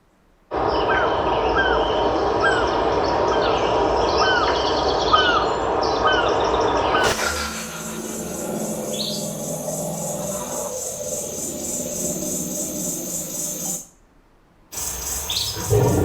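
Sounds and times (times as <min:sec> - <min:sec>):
steady rushing background: 0:07.0 - 0:13.9
bird chirping: 0:14.8 - 0:16.0.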